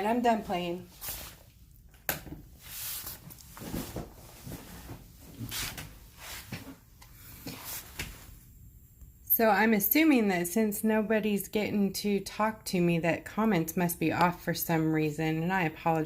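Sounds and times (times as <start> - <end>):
soft rustles: 0.1 - 1.6, 2.5 - 6.8, 7.4 - 8.4.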